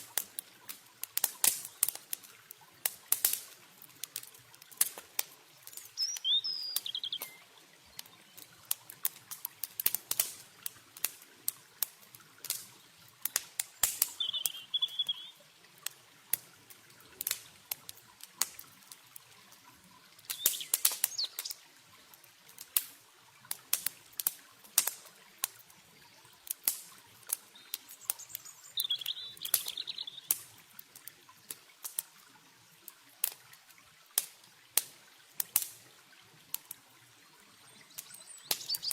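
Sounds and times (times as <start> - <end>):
campfire crackling and popping: 0.0 - 37.0, 37.9 - 38.9
running water: 0.0 - 38.9
small bird chirping: 5.8 - 8.3, 14.1 - 15.4, 20.3 - 21.6, 27.5 - 30.4, 37.9 - 38.9.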